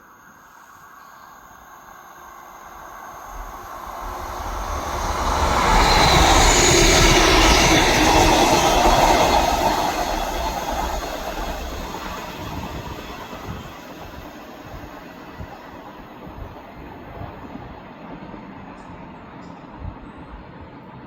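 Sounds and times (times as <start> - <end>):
train passing: 0.0 - 21.0.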